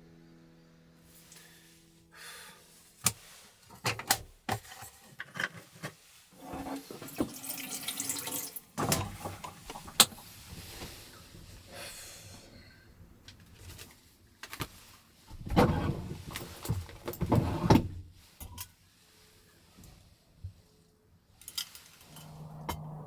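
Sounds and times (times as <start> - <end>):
water running and splashing: 6.9 - 8.8.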